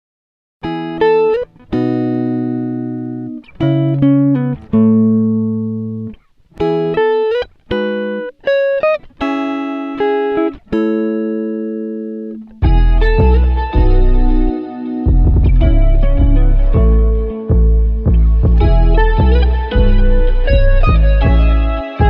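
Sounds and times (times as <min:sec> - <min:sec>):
plucked guitar notes and chords: 0:00.6 - 0:22.0.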